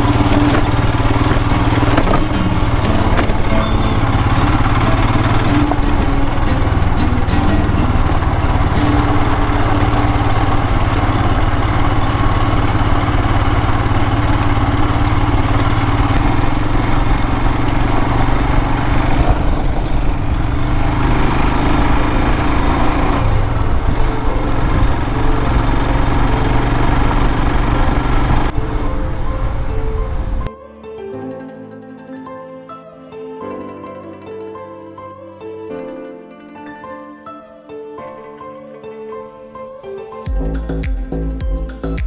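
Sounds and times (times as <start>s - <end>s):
motorcycle engine running: 0.0s - 30.5s
wind and road noise: 0.0s - 30.5s.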